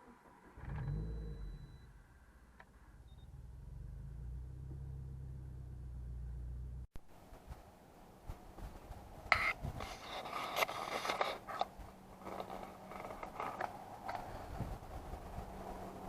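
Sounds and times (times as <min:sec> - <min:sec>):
parts scraping and clicking: 0:09.3 - 0:14.4.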